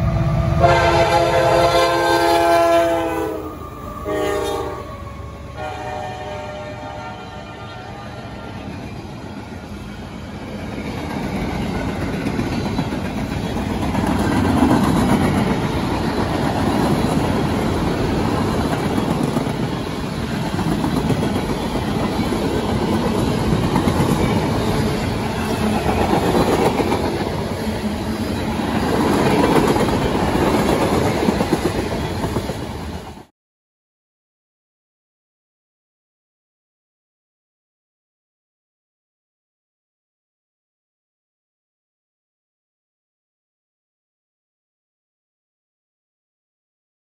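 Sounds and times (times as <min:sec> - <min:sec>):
freight train wheels rumbling: 0:00.0 - 0:33.3.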